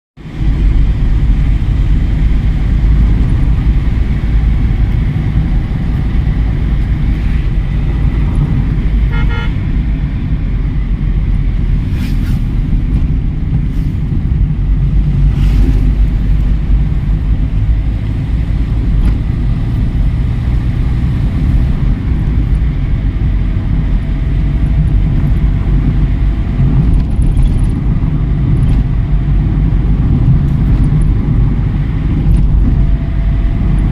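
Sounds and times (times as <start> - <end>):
car road and wind rumble: 0.2 - 33.9
car horn toot: 9.0 - 9.7.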